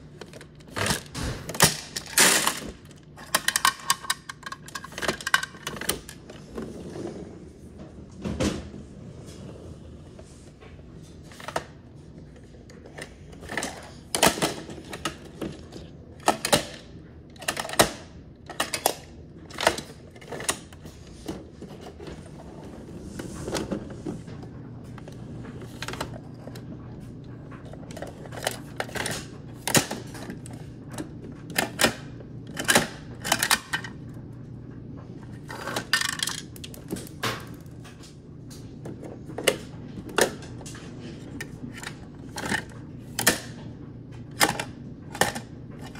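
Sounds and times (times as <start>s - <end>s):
plastic toys clacking: 1.7s - 6.2s.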